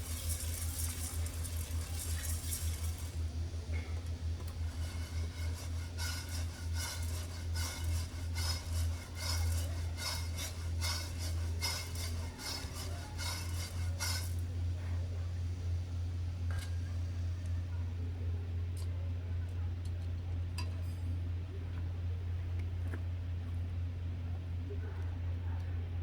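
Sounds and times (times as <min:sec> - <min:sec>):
coffee beans rattling in a pan: 0:00.0 - 0:03.3, 0:04.4 - 0:14.5.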